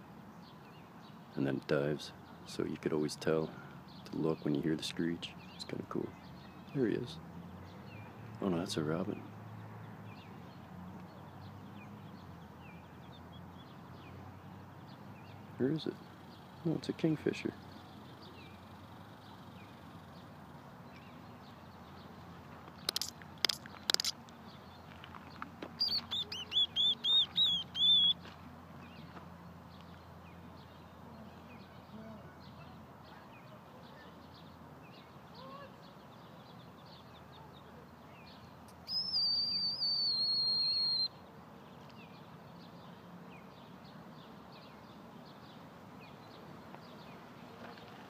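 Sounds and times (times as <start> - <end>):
faint chirps: 22.8 - 24.2, 25.8 - 28.2, 38.2 - 41.2
high whistled bird calls: 22.9 - 24.2, 25.8 - 28.2, 38.8 - 41.2.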